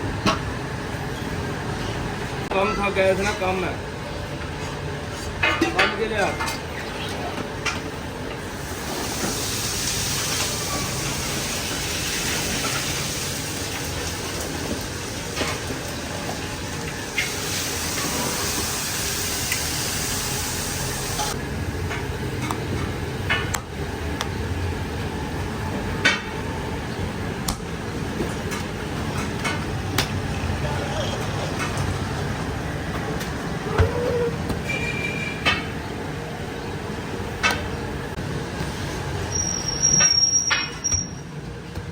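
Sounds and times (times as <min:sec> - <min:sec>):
food frying hiss: 0:08.5 - 0:21.4.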